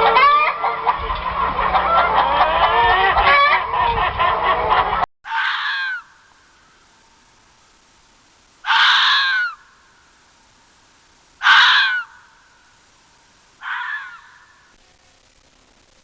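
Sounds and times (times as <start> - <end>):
harsh caw-like animal calls: 0.0 - 6.9, 8.6 - 10.2, 11.4 - 12.8, 13.6 - 14.8.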